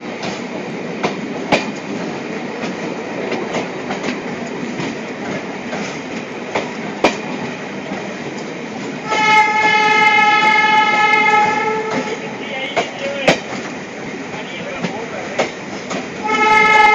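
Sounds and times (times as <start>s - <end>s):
train wheels clicking on rails: 0.0s - 16.9s
locomotive horn blast: 9.0s - 13.0s, 16.2s - 16.9s.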